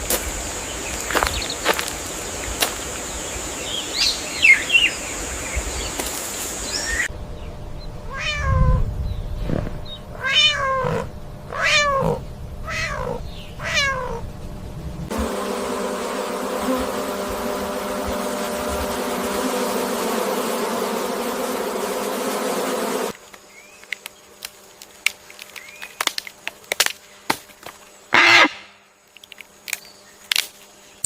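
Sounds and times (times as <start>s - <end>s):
low steady hum: 7.0s - 23.1s
cat meowing: 8.1s - 8.8s, 10.2s - 14.2s
steady high whine: 14.2s - 23.2s.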